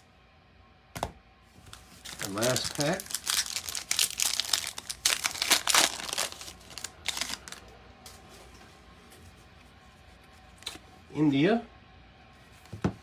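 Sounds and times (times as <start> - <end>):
plastic wrapper tearing and crinkling: 1.6 - 7.7.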